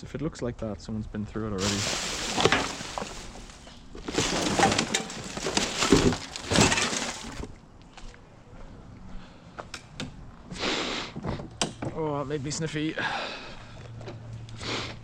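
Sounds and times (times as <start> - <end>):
hands rummaging through rubbish: 1.6 - 7.6.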